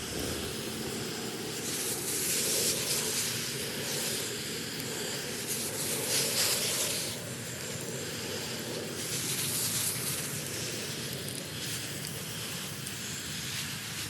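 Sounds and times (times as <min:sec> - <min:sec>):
garden hose spraying water: 0:00.0 - 0:14.0.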